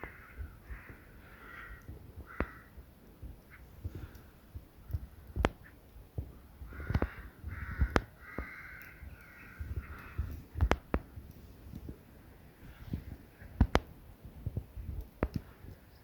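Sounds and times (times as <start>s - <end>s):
crows cawing: 0.0s - 2.8s, 6.6s - 10.5s
sharp clicks: 6.8s - 11.9s, 13.6s - 13.9s.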